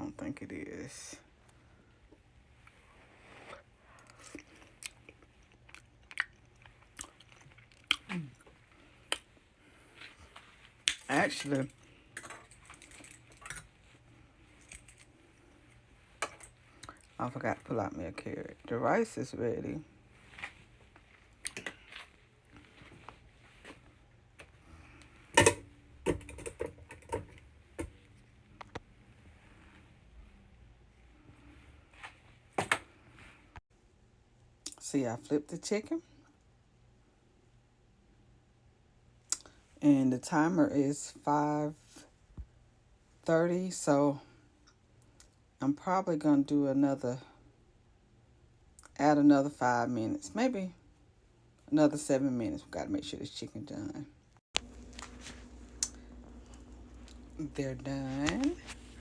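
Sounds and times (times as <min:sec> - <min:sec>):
person chewing rice: 0:03.9 - 0:10.4.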